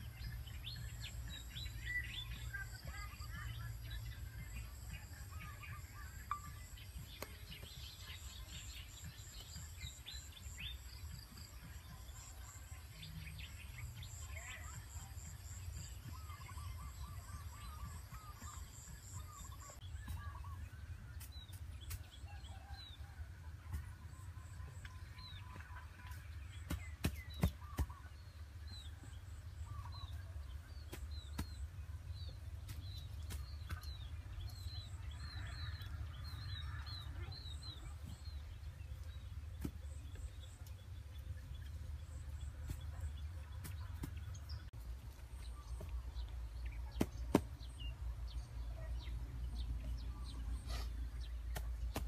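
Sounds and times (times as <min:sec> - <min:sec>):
birds chirping: 0:00.0 - 0:23.2, 0:24.1 - 0:52.0.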